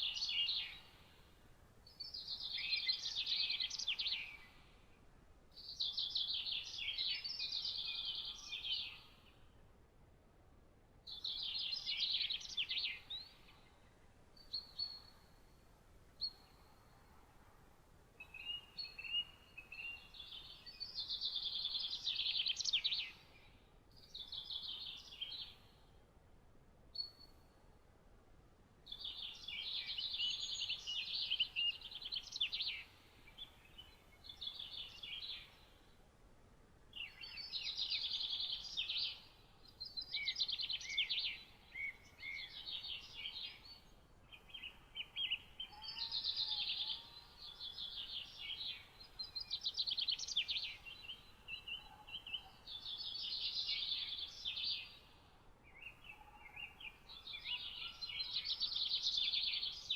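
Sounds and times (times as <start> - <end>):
faint background hiss: 0.0 - 59.9
songbird singing trilled phrases: 18.2 - 25.8, 28.9 - 35.8, 37.0 - 59.9
faint lower bird calls: 37.0 - 59.9.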